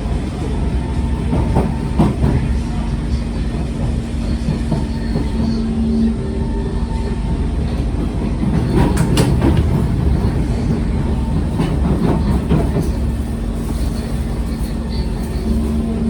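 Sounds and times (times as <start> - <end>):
metro train rumbling: 0.0 - 16.0
wheels clickety-clack: 1.1 - 2.8, 3.4 - 5.8, 7.2 - 16.0.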